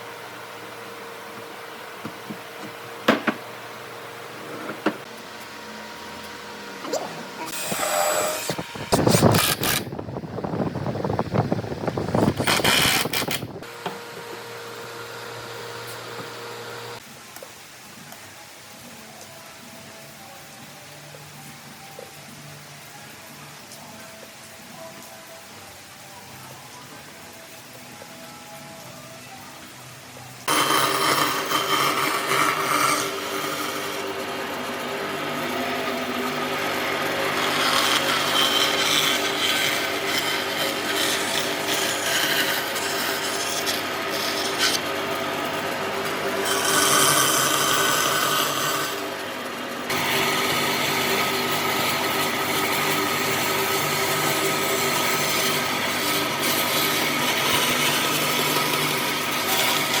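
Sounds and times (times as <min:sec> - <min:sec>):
power tool sanding wood: 0:30.5 - 1:00.0.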